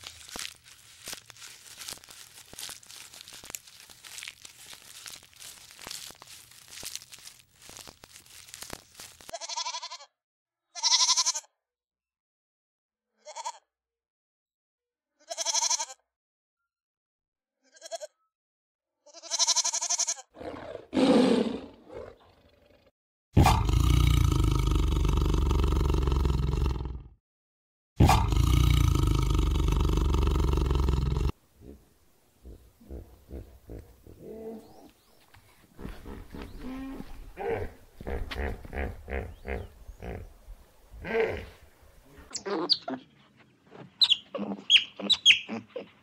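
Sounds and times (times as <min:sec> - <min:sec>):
dense crackling crunching: 0:00.0 - 0:09.4, 0:28.3 - 0:31.4
low rough animal call: 0:20.4 - 0:27.1, 0:28.0 - 0:35.0, 0:35.8 - 0:40.4, 0:41.0 - 0:43.2
short pitched animal calls: 0:44.0 - 0:46.0.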